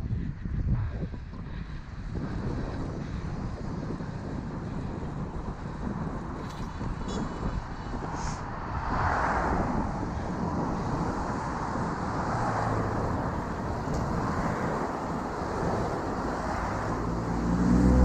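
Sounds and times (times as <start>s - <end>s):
road traffic noise: 0.1s - 18.0s
motor vehicle passing close: 11.8s - 18.0s.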